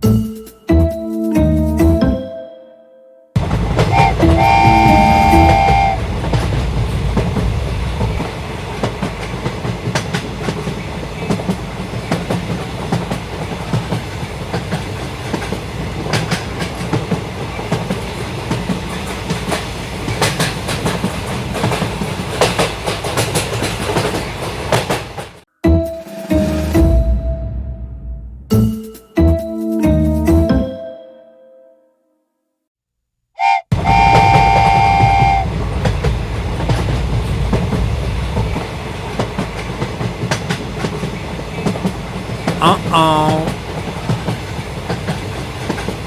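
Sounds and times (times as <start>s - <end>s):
train rumbling on rails: 3.4s - 25.4s, 33.7s - 46.0s
train horn: 3.9s - 6.2s, 33.4s - 35.6s.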